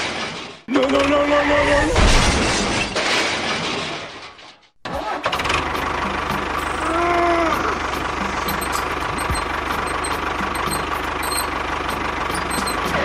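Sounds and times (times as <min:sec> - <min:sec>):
tractor engine running: 0:05.0 - 0:13.0.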